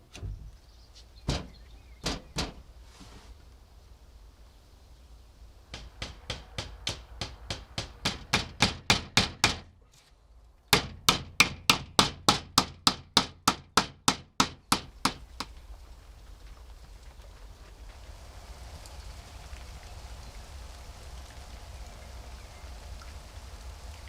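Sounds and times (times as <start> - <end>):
hammer blows: 5.7 - 9.7, 10.8 - 15.5.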